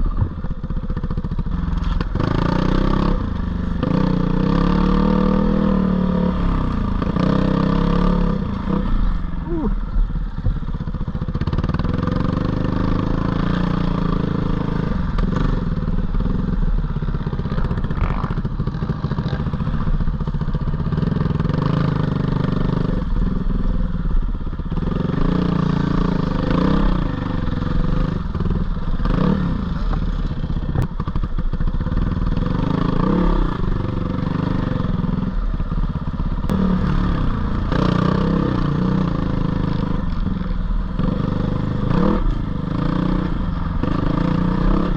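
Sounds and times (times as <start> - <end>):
dirt bike engine revving: 3.8 - 9.8, 29.0 - 29.9, 41.0 - 44.9.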